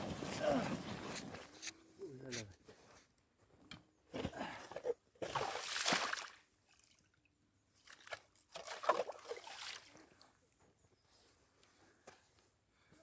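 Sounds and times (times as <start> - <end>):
slushy water sloshing and splashing: 4.3 - 6.4, 7.8 - 10.0.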